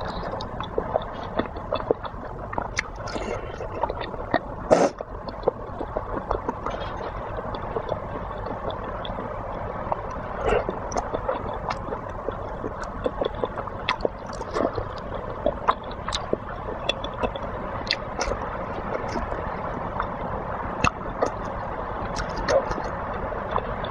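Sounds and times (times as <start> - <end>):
mouth clicks: 0.0 - 9.3, 9.9 - 19.4
wet chewing and squishing: 0.0 - 20.2, 20.8 - 23.9
steady background hiss: 0.0 - 23.9.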